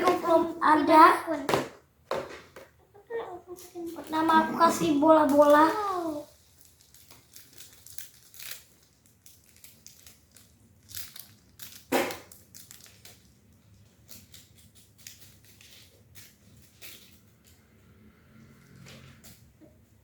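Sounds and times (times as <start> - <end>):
beaded slime crunching: 5.3 - 13.3.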